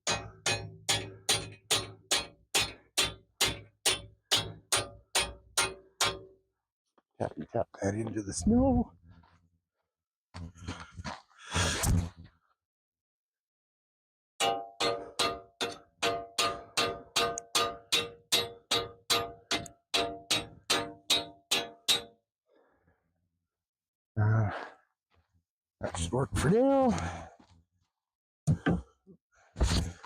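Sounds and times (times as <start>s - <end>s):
hammer striking a metal stake: 0.0s - 6.4s, 14.4s - 22.2s.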